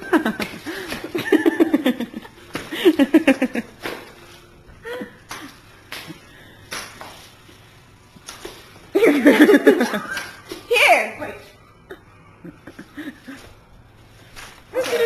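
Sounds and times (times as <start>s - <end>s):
people laughing and giggling: 0.0s - 3.9s, 8.9s - 10.4s, 11.8s - 13.6s.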